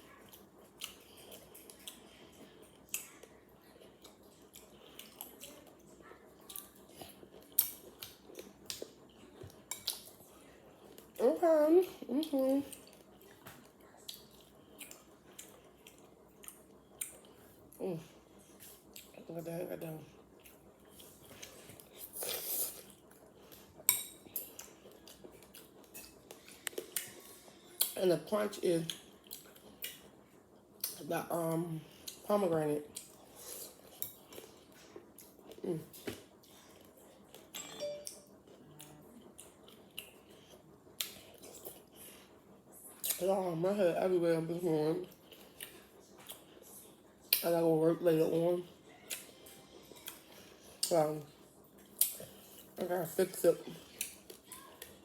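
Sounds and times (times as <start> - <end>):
ringing spoon clink: 37.6 - 38.3.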